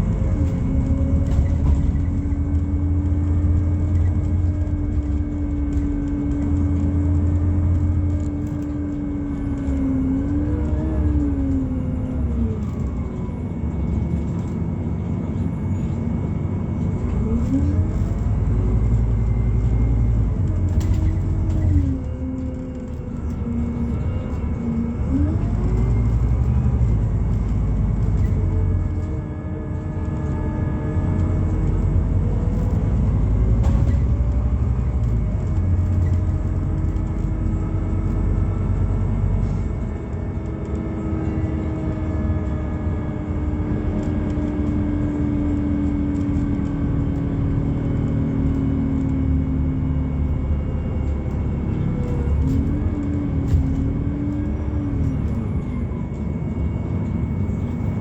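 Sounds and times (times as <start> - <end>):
bus engine rumble: 0.0 - 58.0.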